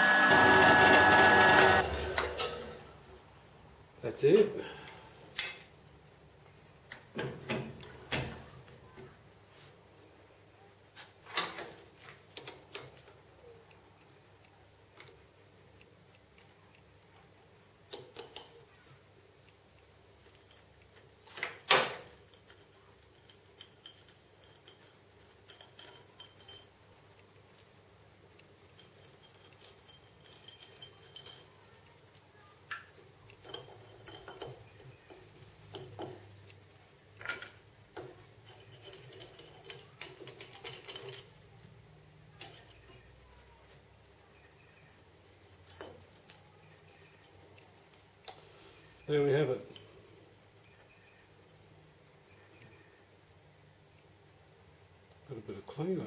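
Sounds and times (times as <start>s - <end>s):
metal clinks and knocks: 20.2s - 27.2s, 28.6s - 31.9s, 33.2s - 41.7s, 42.3s - 43.2s, 45.2s - 50.1s.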